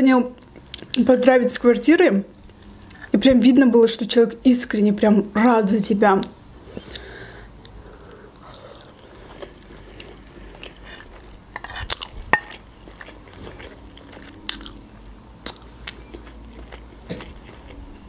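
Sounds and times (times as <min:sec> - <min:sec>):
chewing and biting: 0:06.8 - 0:14.8, 0:15.4 - 0:18.0.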